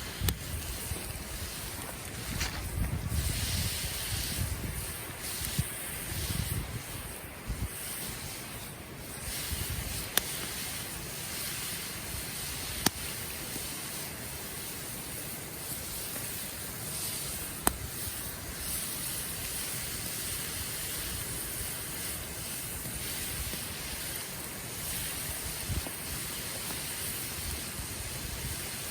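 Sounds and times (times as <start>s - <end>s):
campfire hissing: 0.0s - 28.9s
wood crackling and popping: 0.0s - 28.9s.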